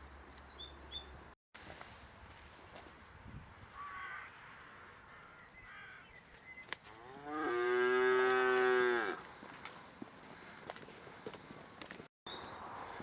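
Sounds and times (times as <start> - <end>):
crow cawing: 3.8 - 4.5, 5.2 - 6.1
cow mooing: 7.0 - 9.2.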